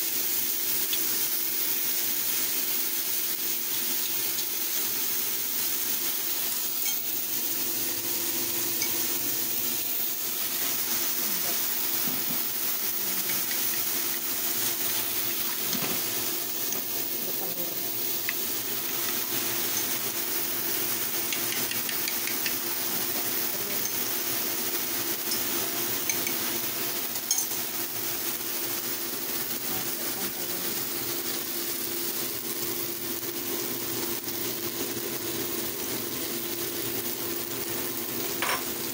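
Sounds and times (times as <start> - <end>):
mushrooms sizzling in oil: 0.0 - 38.9
utensil clicks against pan: 21.3 - 22.6, 26.1 - 26.4.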